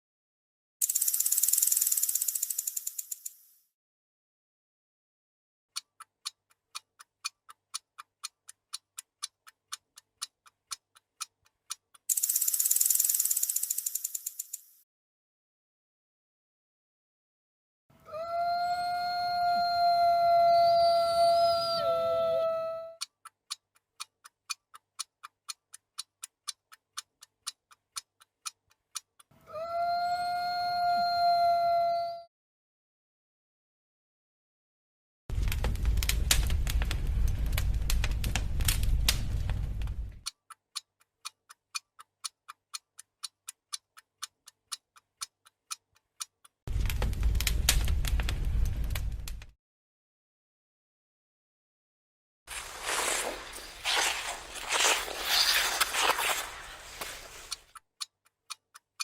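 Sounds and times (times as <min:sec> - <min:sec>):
mechanical clock-like ticking: 0:00.8 - 0:03.6, 0:05.7 - 0:14.8, 0:23.0 - 0:29.3, 0:40.2 - 0:46.6, 0:57.5 - 0:59.0.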